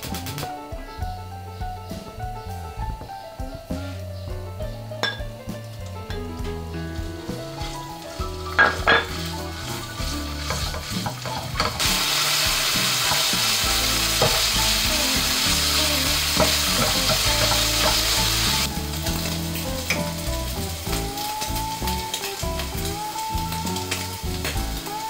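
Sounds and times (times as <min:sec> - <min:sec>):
chicken sizzling in hot oil: 0:06.3 - 0:25.0
spatula scraping and tapping pan: 0:07.2 - 0:11.9, 0:16.4 - 0:18.2.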